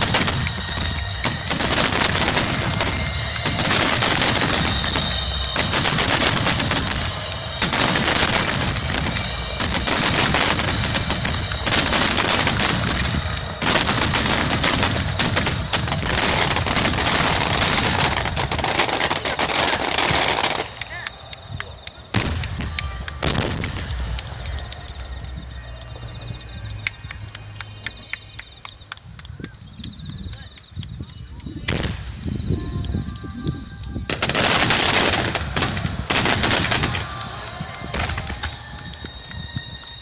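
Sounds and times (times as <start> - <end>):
fireworks bursting rapidly: 0.0 - 29.0, 30.3 - 40.0
continuous low rumble: 0.0 - 40.0.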